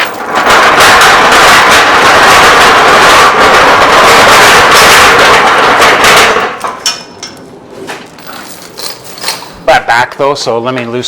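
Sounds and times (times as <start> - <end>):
faint metallic clinks: 8.2 - 9.6.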